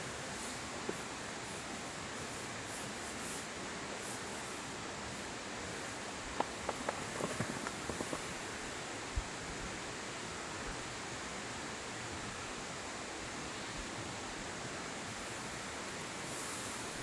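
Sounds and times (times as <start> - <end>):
steady rushing outdoor noise: 0.0 - 9.0.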